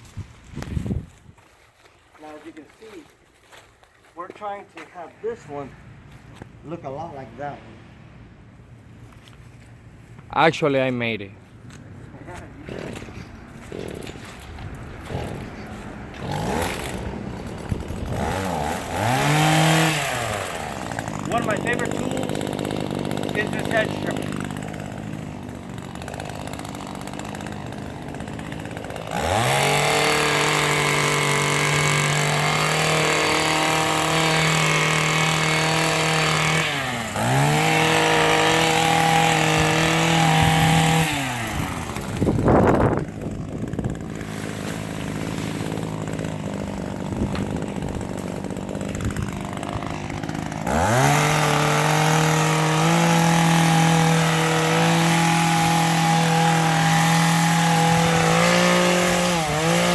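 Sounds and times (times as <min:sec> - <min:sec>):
hedge trimmer engine revving: 0:12.0 - 0:59.9.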